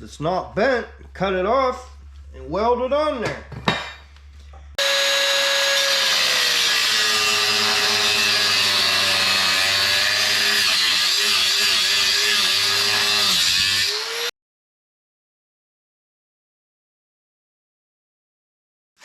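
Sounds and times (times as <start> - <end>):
angle grinder cutting steel: 4.8 - 14.3.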